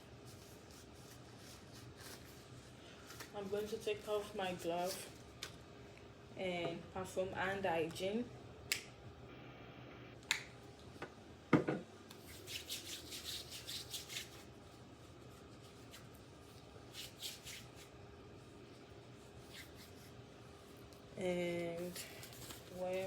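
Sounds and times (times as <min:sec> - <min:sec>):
hands rubbing together: 0:12.2 - 0:14.4.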